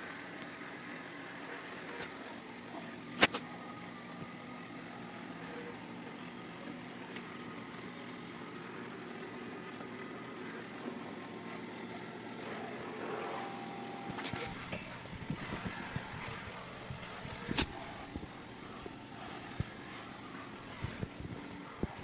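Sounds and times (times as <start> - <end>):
robot vacuum motor hum: 0.0 - 22.0.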